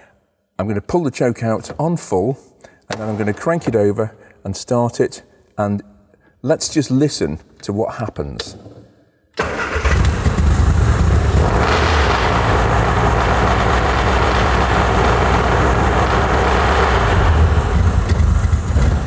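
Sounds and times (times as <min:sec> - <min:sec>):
car engine fast idling: 0:09.7 - 0:19.0.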